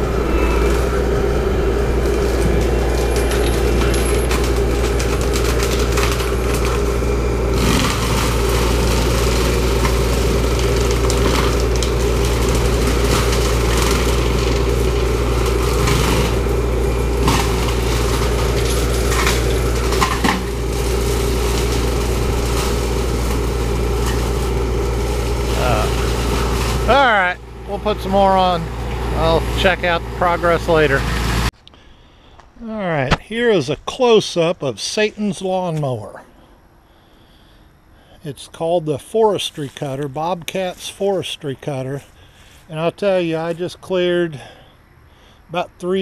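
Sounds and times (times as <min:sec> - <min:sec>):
forestry cutter engine droning: 0:00.0 - 0:46.0
wood cracking and snapping: 0:02.0 - 0:27.1.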